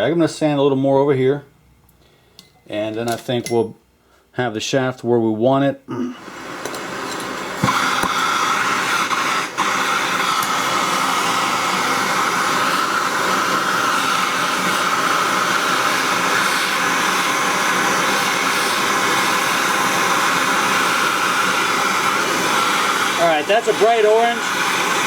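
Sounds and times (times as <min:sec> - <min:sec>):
gas torch flame hissing: 0:06.2 - 0:25.0.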